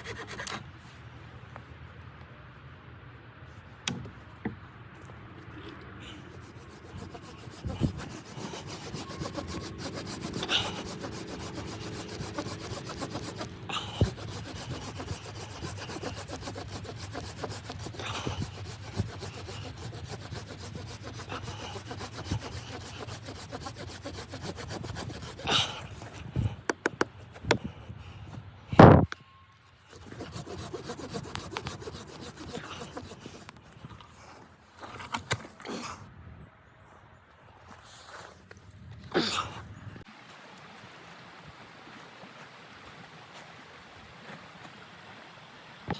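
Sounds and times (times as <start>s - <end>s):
scraping and rubbing on wood: 0.0s - 0.6s, 5.6s - 27.6s, 29.9s - 33.6s.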